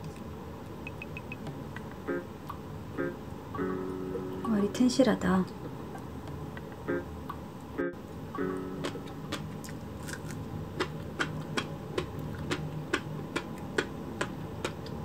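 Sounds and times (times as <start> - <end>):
crunchy chewing: 8.8 - 15.0.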